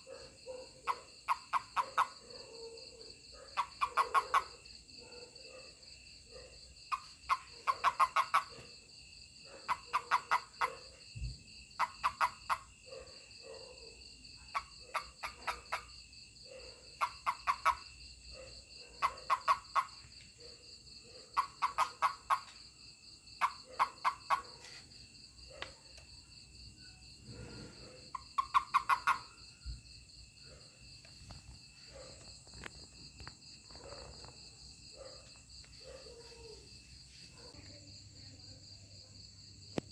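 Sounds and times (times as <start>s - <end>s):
insect chirring: 0.0s - 13.4s, 14.0s - 39.9s
toad pulsed calls: 0.8s - 2.2s, 3.6s - 4.6s, 6.9s - 8.7s, 9.7s - 10.8s, 11.8s - 12.7s, 14.5s - 16.0s, 17.0s - 17.9s, 19.0s - 20.0s, 21.4s - 22.6s, 23.4s - 24.8s, 28.1s - 29.5s.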